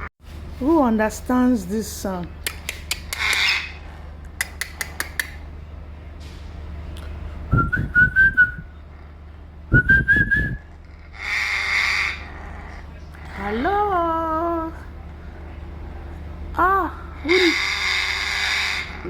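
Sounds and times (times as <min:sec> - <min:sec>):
parrot whistling: 0:02.6 - 0:03.8, 0:07.5 - 0:08.7, 0:09.7 - 0:12.3, 0:17.2 - 0:19.0.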